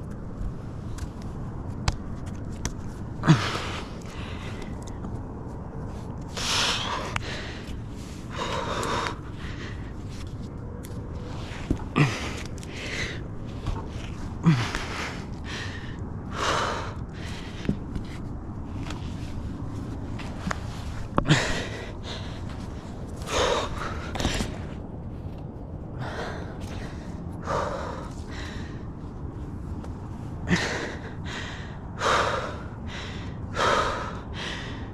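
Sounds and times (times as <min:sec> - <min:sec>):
person gasping breaths: 0:03.2 - 0:05.0, 0:06.3 - 0:10.2, 0:11.1 - 0:19.6, 0:20.4 - 0:24.6, 0:25.9 - 0:29.0, 0:30.3 - 0:34.9.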